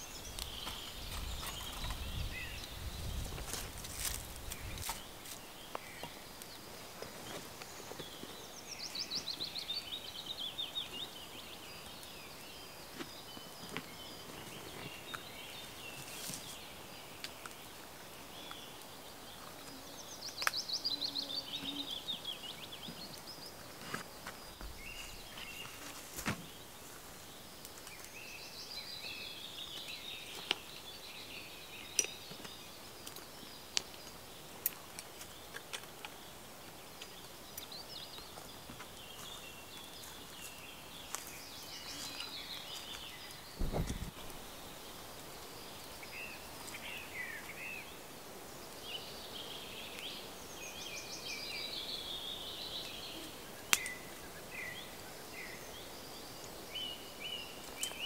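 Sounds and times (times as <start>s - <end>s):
songbird singing: 0.0s - 58.0s
twig fire crackling in stove: 0.2s - 8.4s, 11.6s - 20.7s, 22.9s - 28.2s, 31.8s - 47.6s, 53.6s - 54.4s.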